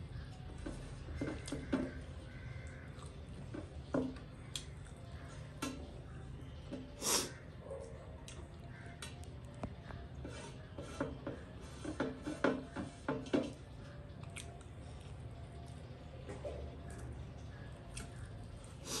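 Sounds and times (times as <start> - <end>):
wet chewing: 2.4 - 3.6, 14.1 - 15.9, 16.8 - 19.0
fingers scraping food on metal plate: 10.1 - 13.7.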